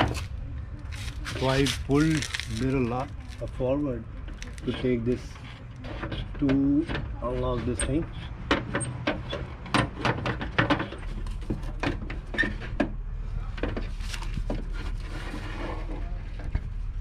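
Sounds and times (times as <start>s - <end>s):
soft rubbing: 0.1s - 5.9s.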